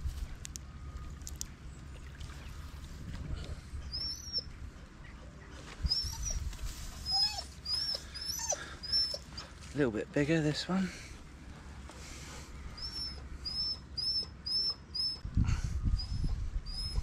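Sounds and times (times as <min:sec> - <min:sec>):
low steady rumble: 0:00.0 - 0:17.0
small bird chirping: 0:03.8 - 0:04.6.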